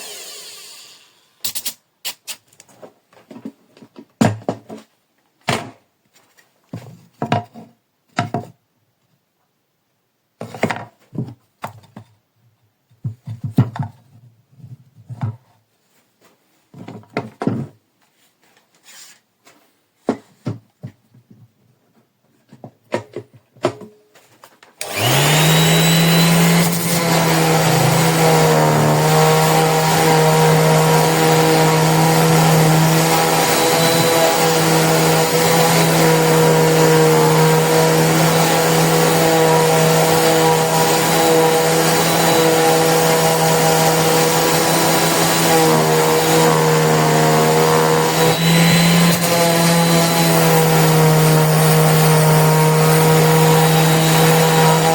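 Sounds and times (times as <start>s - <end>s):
orbital sander running: 0.0s - 1.3s, 24.8s - 54.9s.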